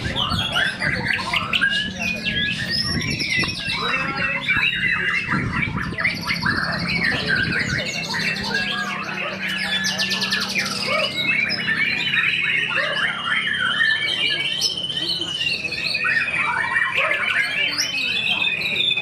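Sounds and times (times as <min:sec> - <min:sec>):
other songbirds singing: 0:00.0 - 0:19.0
songbird singing trills: 0:00.0 - 0:19.0.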